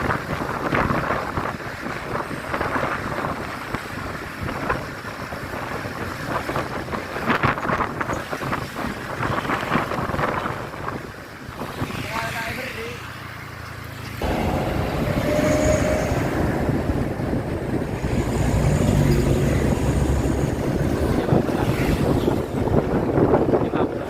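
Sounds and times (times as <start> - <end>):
wind buffeting microphone: 0.0 - 12.3, 14.2 - 24.0
low rumble of road traffic: 0.0 - 24.0.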